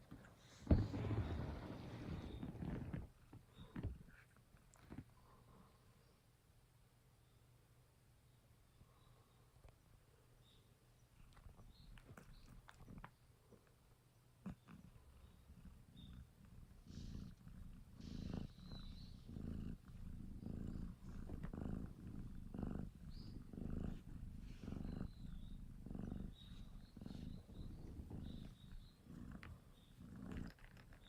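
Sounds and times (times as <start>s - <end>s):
kitten purring: 11.2s - 13.2s, 14.4s - 31.0s.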